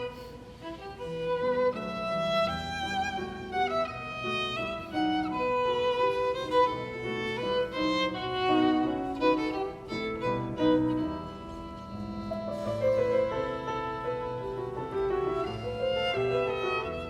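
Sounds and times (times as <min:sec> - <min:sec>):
violin melody: 0:00.0 - 0:17.0.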